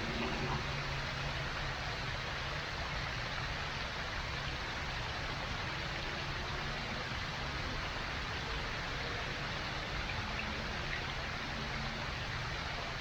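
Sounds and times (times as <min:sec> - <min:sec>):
steady rushing noise: 0:00.0 - 0:03.2.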